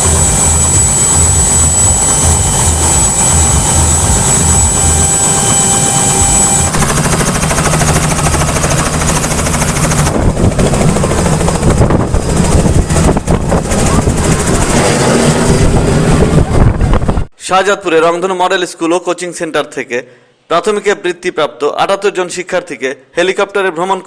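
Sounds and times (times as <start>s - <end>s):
helicopter turbine and rotor: 0.0s - 17.3s
high steady whine: 0.0s - 17.3s.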